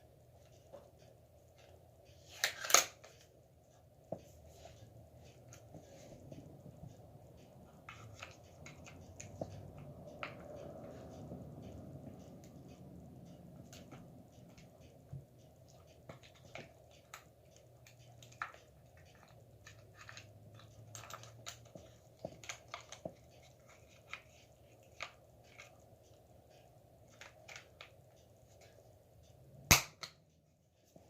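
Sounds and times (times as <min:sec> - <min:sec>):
metal gun parts clicking: 0:02.3 - 0:03.2.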